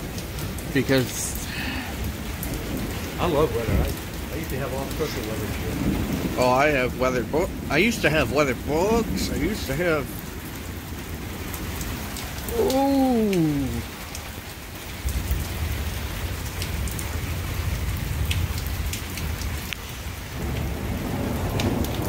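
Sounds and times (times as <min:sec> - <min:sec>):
rain falling: 0:00.0 - 0:22.0
person's drawn-out vocal sound: 0:12.5 - 0:14.0.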